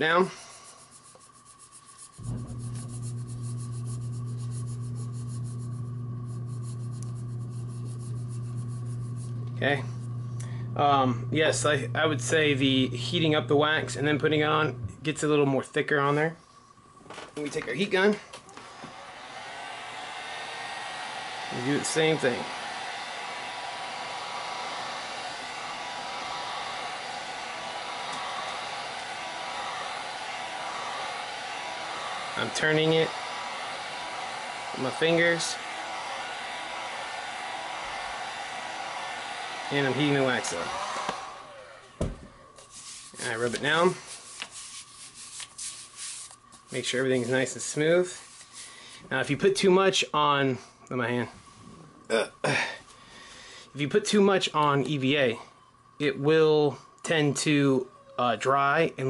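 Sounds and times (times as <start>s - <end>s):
heat gun blowing: 0.0s - 15.3s, 18.1s - 49.1s
steady low hum: 0.2s - 20.6s
wax rubbing on foam grip: 0.3s - 9.7s, 42.6s - 48.7s.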